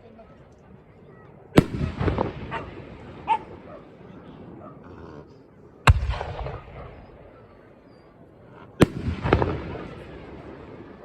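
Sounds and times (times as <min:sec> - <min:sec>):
firework booms with rumble: 0:01.6 - 0:03.7, 0:05.9 - 0:07.4, 0:08.8 - 0:11.0
firework bang: 0:05.9 - 0:07.2, 0:08.8 - 0:11.0.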